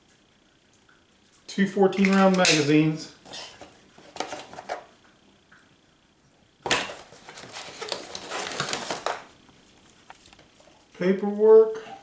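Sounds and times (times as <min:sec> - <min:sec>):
paper and plastic crinkling: 0:01.9 - 0:04.9, 0:06.6 - 0:10.9.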